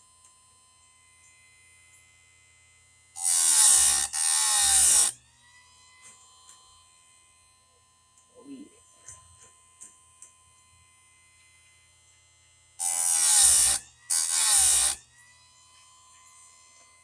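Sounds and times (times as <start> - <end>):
faint motor hum: 0.0 - 17.0
grinding wheel on chain tooth: 3.2 - 5.2, 12.8 - 15.0.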